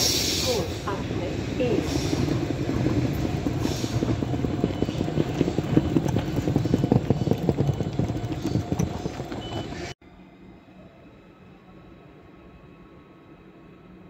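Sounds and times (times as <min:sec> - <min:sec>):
train rumbling: 0:00.0 - 0:14.0
wheels clacking over rail joints: 0:02.2 - 0:10.0.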